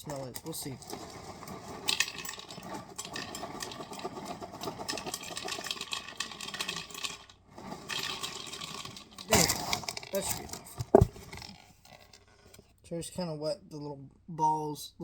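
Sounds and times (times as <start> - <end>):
cereal pouring into a bowl: 0.0 - 12.3.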